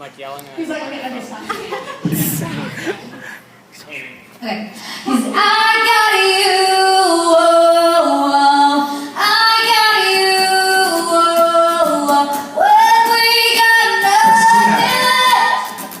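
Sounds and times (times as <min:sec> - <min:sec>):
women singing long held notes: 0:05.0 - 0:15.9.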